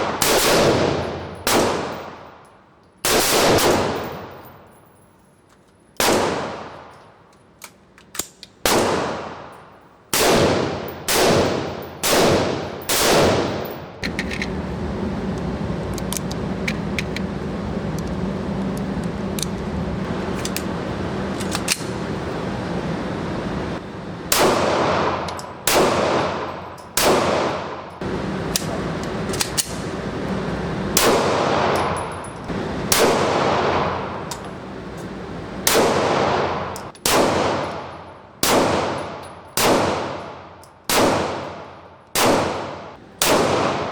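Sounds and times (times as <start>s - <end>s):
echoing gunshots: 0.0s - 4.6s, 6.0s - 7.0s, 8.6s - 14.0s, 24.2s - 28.1s, 30.9s - 32.2s, 32.8s - 34.3s, 35.6s - 43.9s
hiss and low hum: 0.0s - 43.9s.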